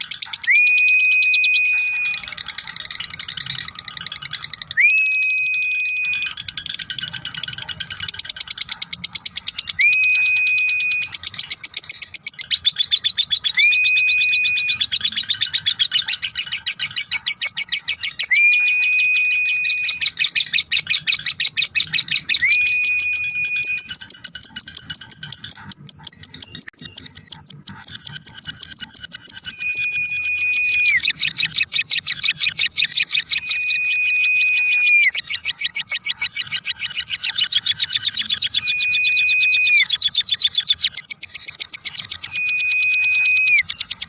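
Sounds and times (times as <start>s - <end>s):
lovebird shrill chatter: 0.0s - 44.0s
held whistle-like note: 0.4s - 2.3s, 4.8s - 6.4s, 9.8s - 11.1s, 22.4s - 23.9s, 29.5s - 31.0s, 33.4s - 35.2s, 38.6s - 39.8s, 42.3s - 43.7s.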